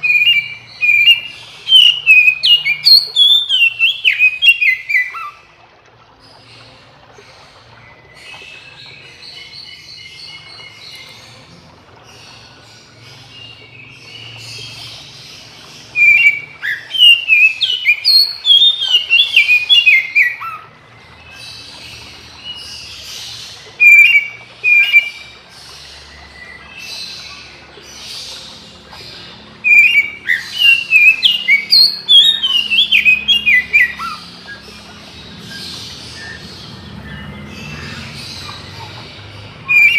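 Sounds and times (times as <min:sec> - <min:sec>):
bird whistling song: 0:00.0 - 0:05.4, 0:13.2 - 0:27.6, 0:28.3 - 0:39.9
faint birdsong: 0:00.0 - 0:39.9.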